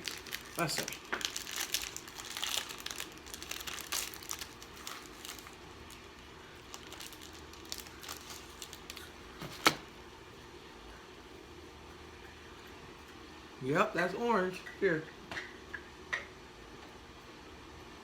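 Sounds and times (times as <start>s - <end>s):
wrapper sharp crack: 0.0s - 6.1s, 6.7s - 9.8s
wrapper crinkling and tearing: 0.0s - 9.8s.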